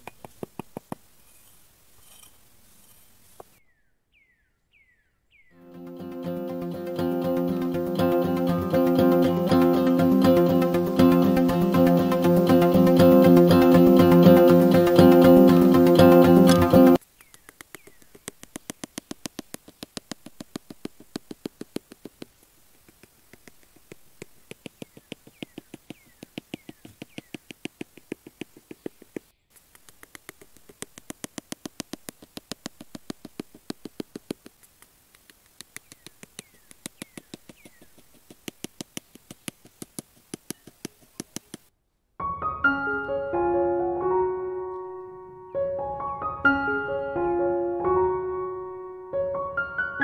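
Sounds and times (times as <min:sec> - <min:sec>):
fast sharp clicks: 0:00.0 - 0:01.1, 0:06.5 - 0:41.7.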